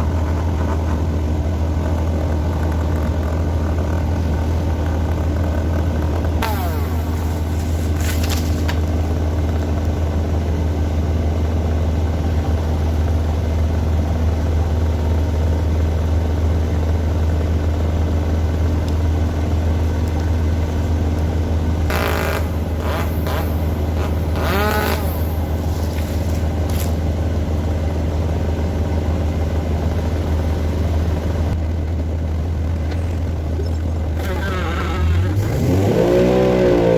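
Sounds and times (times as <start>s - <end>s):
machinery engine running: 0.0s - 36.9s
high squeaks and scrapes: 6.4s - 8.8s, 21.9s - 27.0s, 33.6s - 35.8s.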